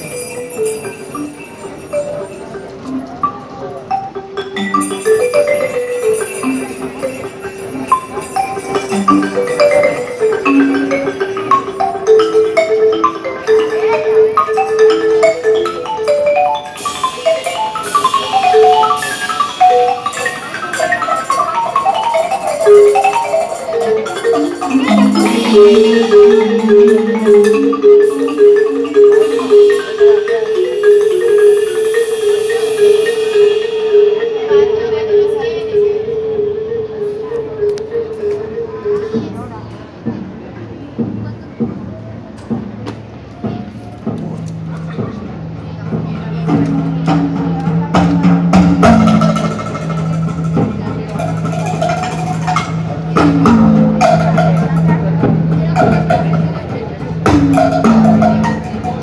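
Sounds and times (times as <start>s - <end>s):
marimba mallet notes: 0.0s - 40.2s, 43.2s - 59.0s
high metallic shimmering strokes: 24.5s - 37.2s.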